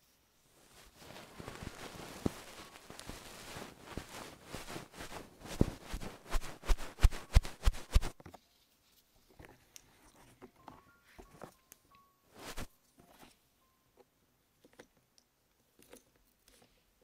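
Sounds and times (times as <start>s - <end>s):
scratching close to microphone: 0.6s - 8.2s, 12.4s - 12.7s.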